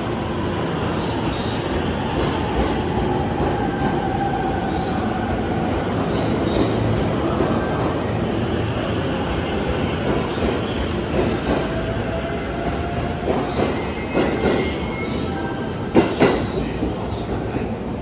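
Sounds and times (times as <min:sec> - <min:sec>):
train running noise: 0:00.0 - 0:18.0
sharp clacks of train wheels: 0:13.2 - 0:14.9, 0:15.9 - 0:17.0.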